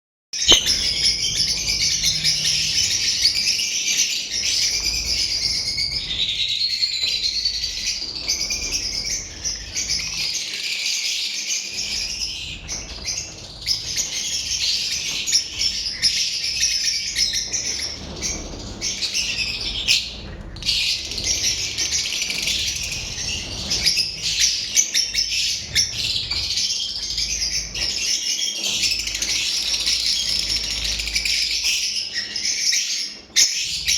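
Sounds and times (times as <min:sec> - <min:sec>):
lovebirds chirping and chattering: 0:00.4 - 0:33.9.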